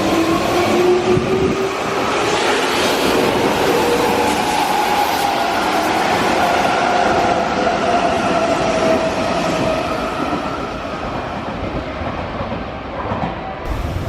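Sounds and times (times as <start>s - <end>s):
train wheels rumbling: 9.6s - 14.0s.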